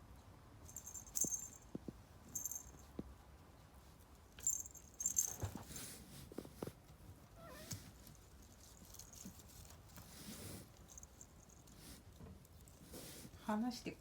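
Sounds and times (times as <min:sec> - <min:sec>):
small jingle bell shaking: 0:00.7 - 0:01.7, 0:02.3 - 0:02.9, 0:04.4 - 0:05.6.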